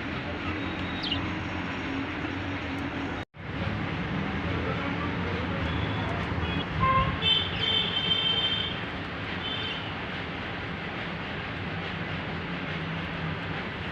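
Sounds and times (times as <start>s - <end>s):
budgies chirping: 0.4s - 1.6s.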